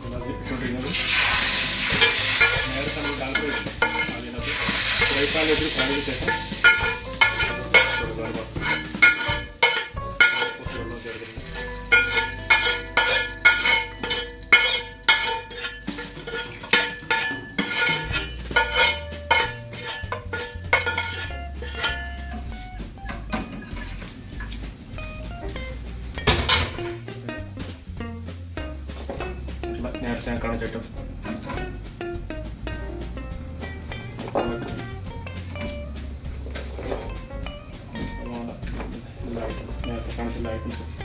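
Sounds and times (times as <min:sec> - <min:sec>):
plucked guitar music with bass: 0:00.0 - 0:41.0
food sizzling in a pot: 0:00.4 - 0:25.3.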